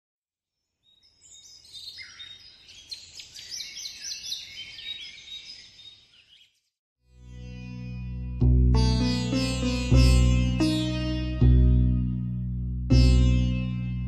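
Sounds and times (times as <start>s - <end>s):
songbirds chirping and singing: 0.8s - 6.6s.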